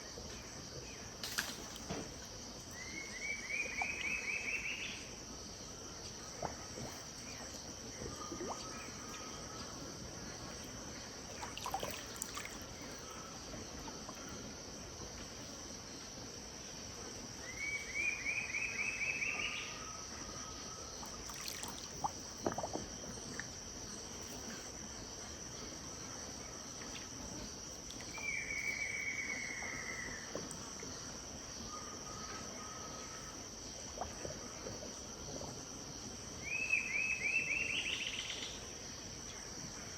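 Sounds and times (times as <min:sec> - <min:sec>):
insect drone: 0:00.0 - 0:39.9
bird singing: 0:02.8 - 0:05.1, 0:17.4 - 0:21.0, 0:28.1 - 0:31.0, 0:36.4 - 0:38.6.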